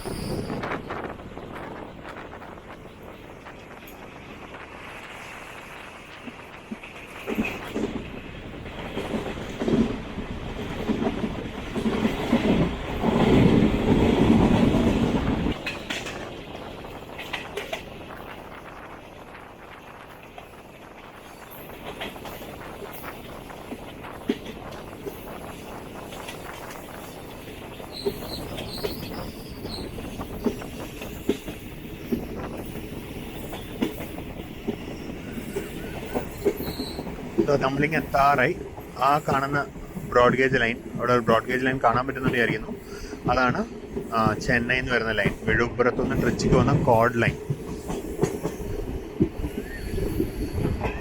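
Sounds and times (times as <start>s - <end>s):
faint wheel squeal: 0.0s - 0.7s, 49.4s - 51.0s
train wheels clacking on rails: 0.0s - 51.0s.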